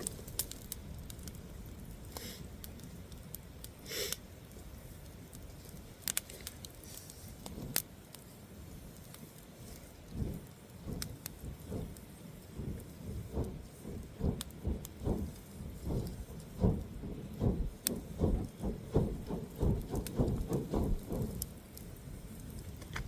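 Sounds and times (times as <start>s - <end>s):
soft low thumps: 10.1s - 21.6s.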